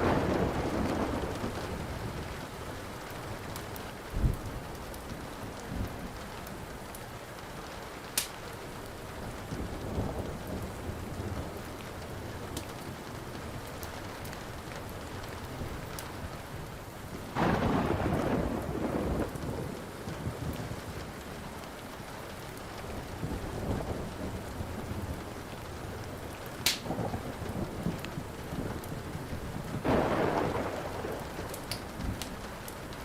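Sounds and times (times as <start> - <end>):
loud thunderclap: 0.0 - 2.4, 17.4 - 20.8, 29.4 - 32.4
low rumble of thunder: 0.0 - 6.8, 9.1 - 33.0
steady rain: 0.0 - 33.0
wood fire crackling: 0.0 - 33.0.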